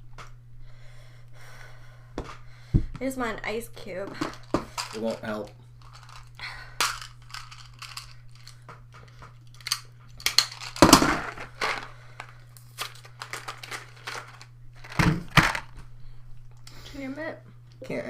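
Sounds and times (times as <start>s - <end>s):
steady low hum: 0.0s - 18.0s
candy packaging crinkling: 4.3s - 15.8s.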